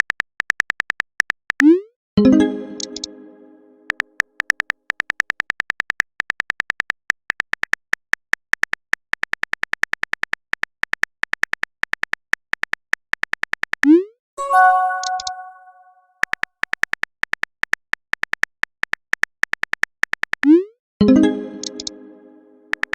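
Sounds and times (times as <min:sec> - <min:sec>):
electronic keyboard typing clicks: 0:02.4 - 0:03.1, 0:14.4 - 0:15.8, 0:21.6 - 0:22.0
ringing multi-tone chime: 0:14.4 - 0:16.0.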